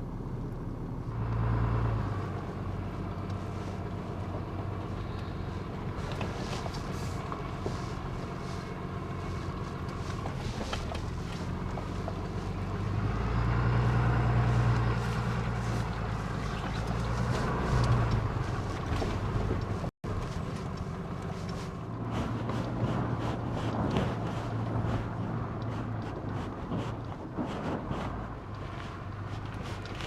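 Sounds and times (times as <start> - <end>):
pickup truck engine running: 0.0 - 30.0
light knocks and rattles: 14.0 - 30.0.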